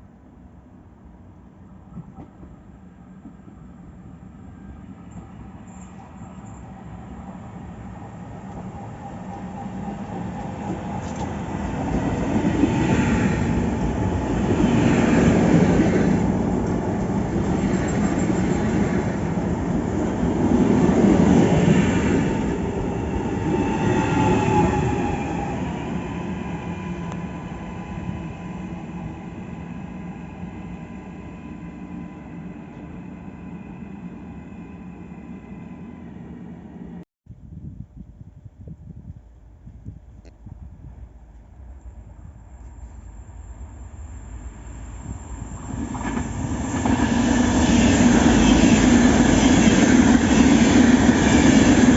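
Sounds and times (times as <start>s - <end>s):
train wheels rumbling on track: 7.6s - 31.7s, 41.3s - 51.9s.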